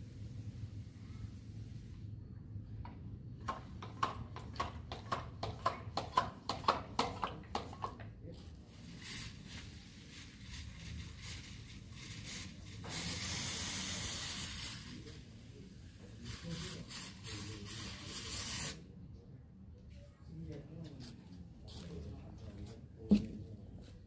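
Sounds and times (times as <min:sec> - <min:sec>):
spraying hiss: 0:08.7 - 0:18.8.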